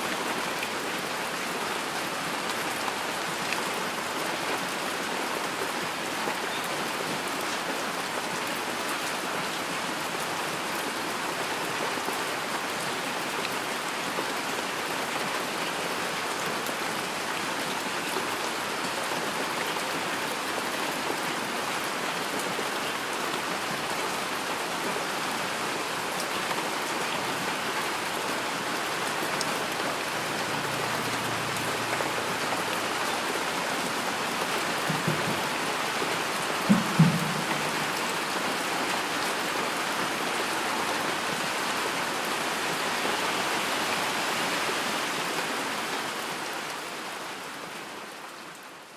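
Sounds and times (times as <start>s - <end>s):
heavy rain hiss: 14.4s - 48.1s
raindrops pattering: 25.5s - 39.1s.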